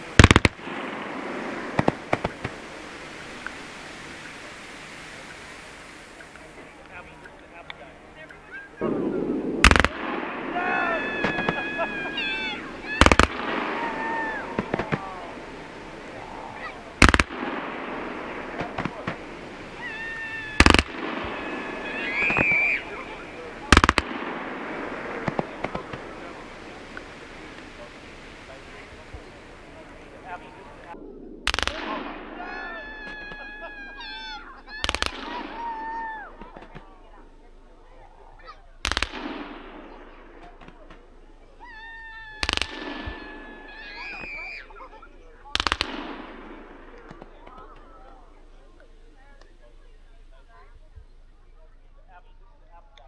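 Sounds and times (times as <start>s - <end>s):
fireworks rapid bangs: 0.0s - 34.2s, 38.8s - 40.5s, 42.4s - 44.4s, 45.5s - 48.4s
faint fireworks pops: 0.0s - 53.0s.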